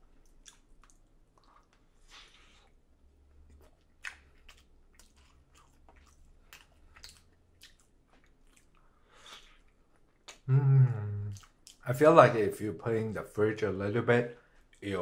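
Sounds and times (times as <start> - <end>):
mouth chewing clicks and smacks: 0.1 - 10.5, 11.3 - 11.9.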